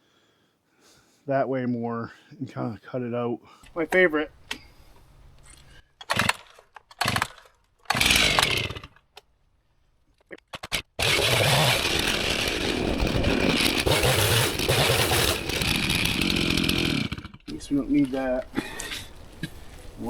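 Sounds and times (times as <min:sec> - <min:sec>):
chainsaw pull-start bursts: 0:06.0 - 0:09.0, 0:10.5 - 0:17.5
chainsaw engine running: 0:07.0 - 0:09.0, 0:10.6 - 0:17.6.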